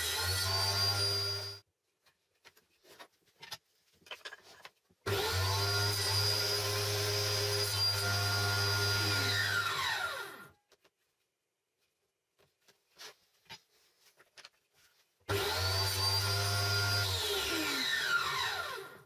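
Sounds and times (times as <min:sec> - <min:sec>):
electric power tool running: 0:05.1 - 0:10.5, 0:15.3 - 0:19.0.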